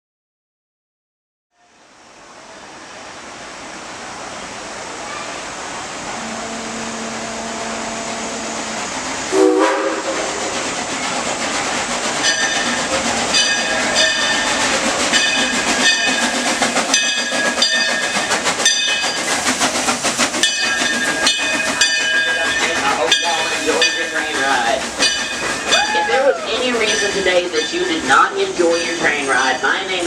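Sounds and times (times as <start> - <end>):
steam hissing: 1.8 - 30.0
locomotive whistle: 6.0 - 10.6, 20.4 - 28.0
locomotive bell ringing: 6.1 - 8.9, 12.1 - 19.3, 20.3 - 30.0.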